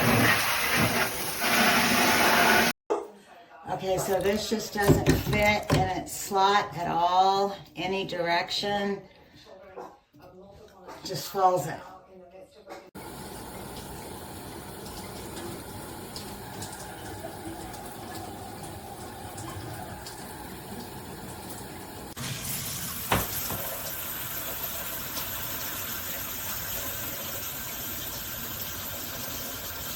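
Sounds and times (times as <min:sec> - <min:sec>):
shower head spraying water: 0:00.0 - 0:02.7.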